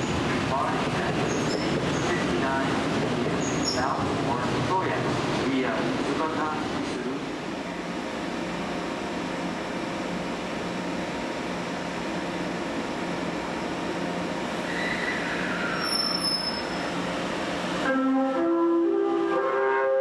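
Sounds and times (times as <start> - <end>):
brief squeal falling in pitch: 14.6 - 16.9.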